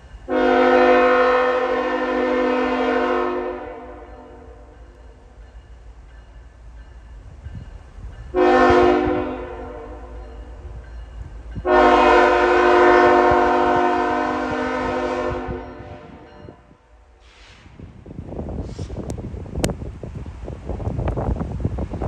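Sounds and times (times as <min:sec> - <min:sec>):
train rumbling on rails: 0:00.0 - 0:22.0
locomotive air horn blasts: 0:00.3 - 0:04.6, 0:08.4 - 0:10.2, 0:11.6 - 0:16.3.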